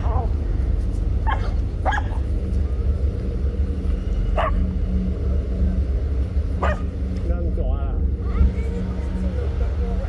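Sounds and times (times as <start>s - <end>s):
low rumble: 0.0s - 10.0s
dog barking: 1.2s - 2.2s, 4.4s - 4.6s, 6.6s - 6.9s.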